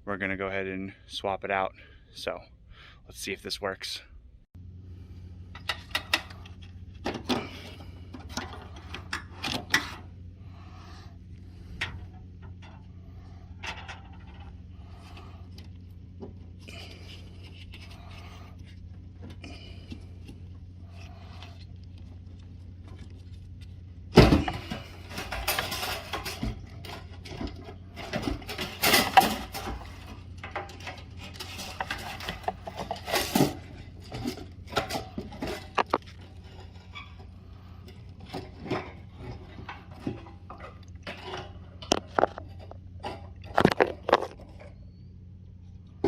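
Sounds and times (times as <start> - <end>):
steady low hum: 0.0 - 46.0
metal tools clinking and clattering: 24.3 - 37.3.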